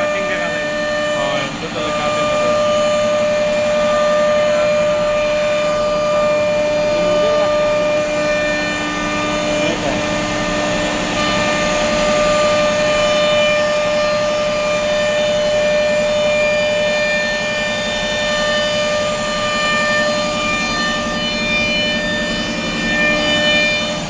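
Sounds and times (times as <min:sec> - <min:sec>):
rough wood cutting noise: 0:00.0 - 0:15.6
router spindle whine: 0:00.0 - 0:24.0.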